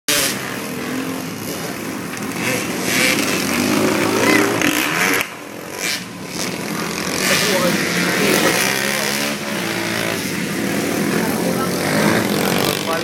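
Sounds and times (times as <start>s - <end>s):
dirt bike engines revving: 0.1s - 13.0s.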